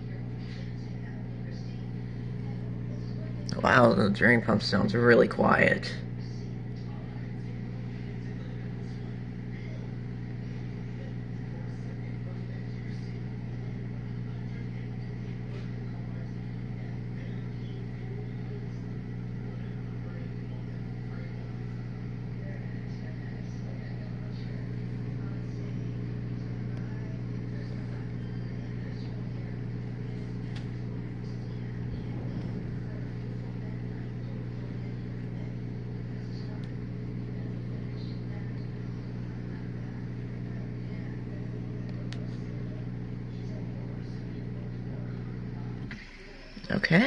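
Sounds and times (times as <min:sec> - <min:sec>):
dishwasher drain pump humming: 0:00.0 - 0:47.0.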